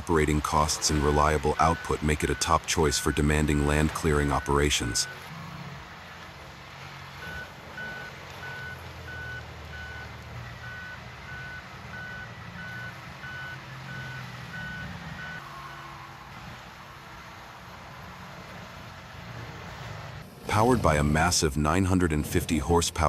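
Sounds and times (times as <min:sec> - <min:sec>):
low diesel engine rumble: 0:00.0 - 0:23.0
backup alarm beeping: 0:00.4 - 0:05.3, 0:07.2 - 0:15.9.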